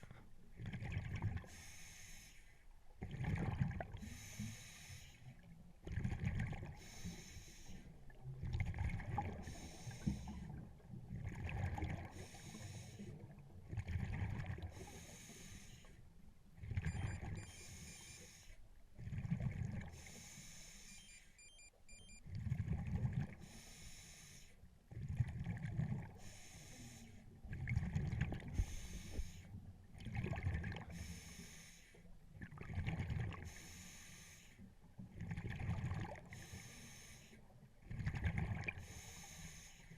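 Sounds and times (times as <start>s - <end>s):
hissing regulator inhalations: 4.0s - 5.2s, 6.8s - 7.8s, 9.4s - 10.4s, 12.2s - 13.1s, 14.7s - 16.0s, 17.4s - 18.6s, 20.0s - 21.6s, 23.4s - 24.6s, 26.2s - 27.2s, 28.6s - 29.5s, 30.9s - 32.1s, 33.5s - 34.6s, 36.4s - 37.4s, 38.8s - 39.9s.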